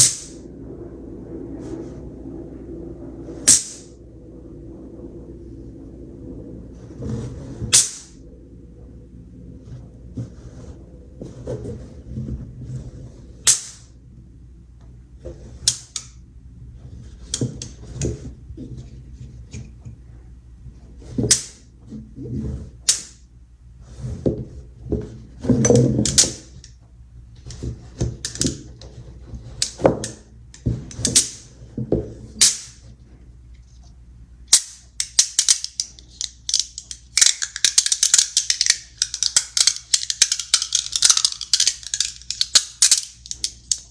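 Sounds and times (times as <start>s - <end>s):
magnet balls snapping together: 0.0s - 0.4s, 3.5s - 3.9s, 7.7s - 8.2s, 13.5s - 13.9s, 15.7s - 16.2s, 22.9s - 23.2s, 28.2s - 28.6s, 29.6s - 31.5s, 32.4s - 32.8s, 34.5s - 43.9s
magnet balls clattering: 27.5s - 31.6s, 34.5s - 43.9s.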